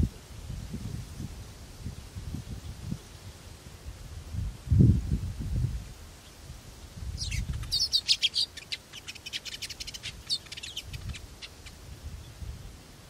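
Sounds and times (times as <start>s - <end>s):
small bird chirping: 7.1s - 12.4s.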